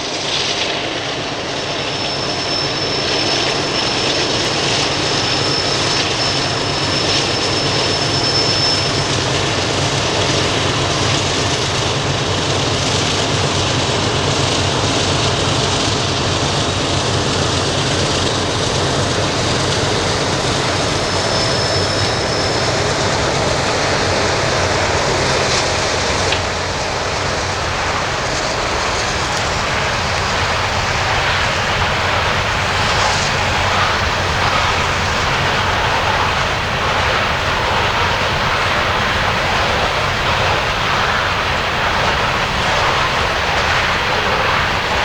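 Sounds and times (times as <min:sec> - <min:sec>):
train cars rumbling on rails: 0:00.0 - 0:45.0
high wheel squeal: 0:01.6 - 0:09.7, 0:14.7 - 0:45.0
low diesel hum: 0:13.7 - 0:45.0.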